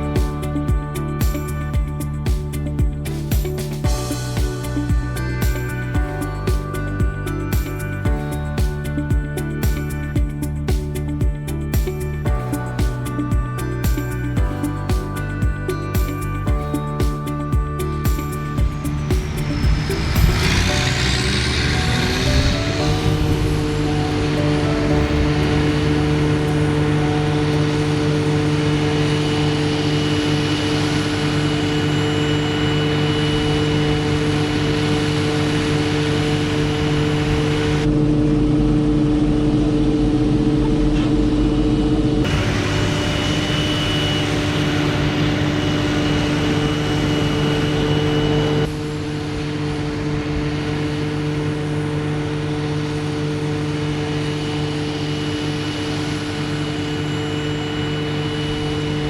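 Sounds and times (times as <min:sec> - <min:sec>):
constant higher whine: 0:00.0 - 0:59.0
farm machinery engine drone: 0:17.8 - 0:59.0.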